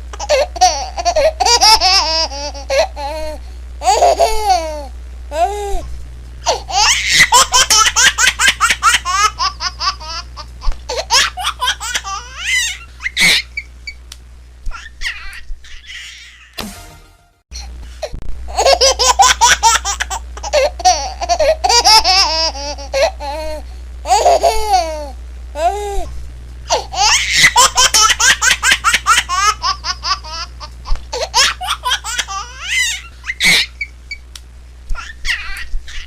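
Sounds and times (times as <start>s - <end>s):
low hum: 0.0s - 14.7s
baby laughing: 0.1s - 5.8s, 6.5s - 13.7s, 14.7s - 16.6s, 18.5s - 26.1s, 26.7s - 33.9s, 34.9s - 36.0s.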